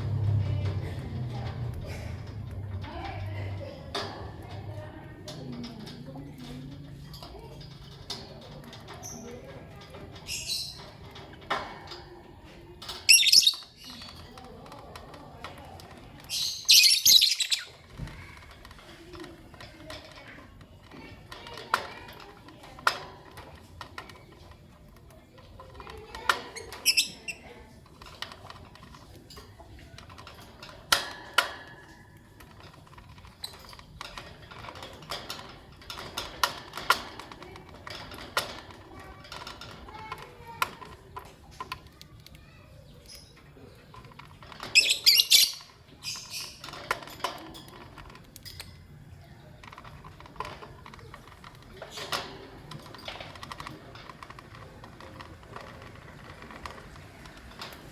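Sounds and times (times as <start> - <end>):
lovebirds chirping: 13.1 - 14.2, 16.3 - 17.9, 44.8 - 46.6
small clicks and taps: 27.8 - 44.8.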